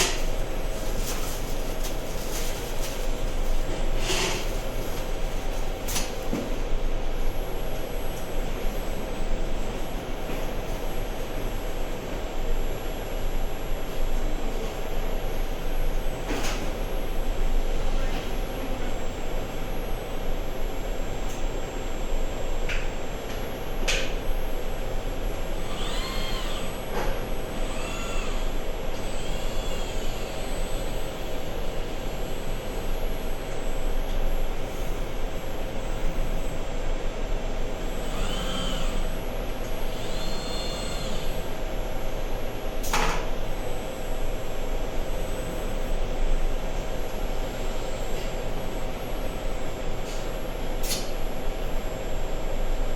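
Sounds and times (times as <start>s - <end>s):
machine running: 22.8s - 52.4s.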